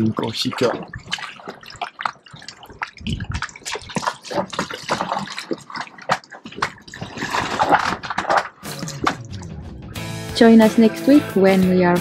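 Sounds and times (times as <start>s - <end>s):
water splashing against boat hull: 0.0s - 9.4s.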